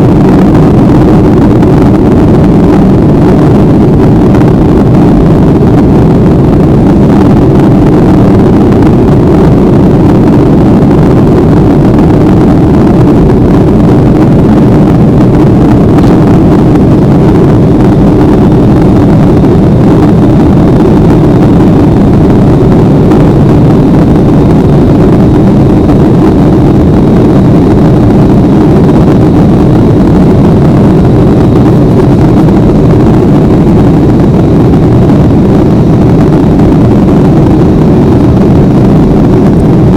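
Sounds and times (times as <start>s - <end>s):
plane engines droning: 0.0s - 39.9s
rushing air: 0.0s - 39.9s.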